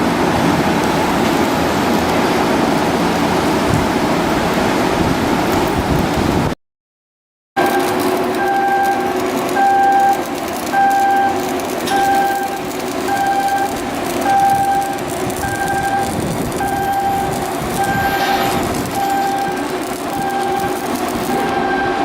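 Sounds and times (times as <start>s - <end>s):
shipyard work noise: 0.0s - 6.6s, 7.6s - 22.0s
warning beeper: 10.8s - 13.7s, 14.3s - 20.8s, 21.4s - 22.0s.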